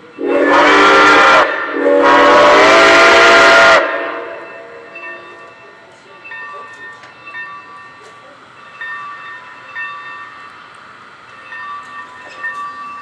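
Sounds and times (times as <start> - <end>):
steam locomotive whistle blasts: 0.2 - 5.1.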